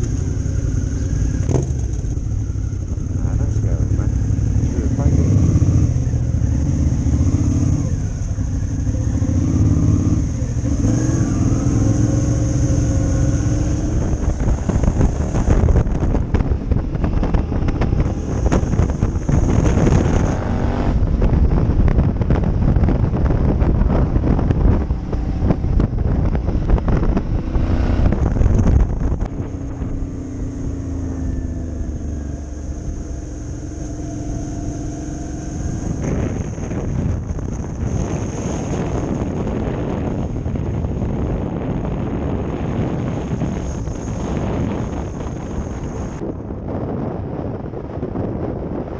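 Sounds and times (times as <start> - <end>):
motorcycle engine revving: 0.0 - 46.3
wind rush on microphone: 0.0 - 48.9.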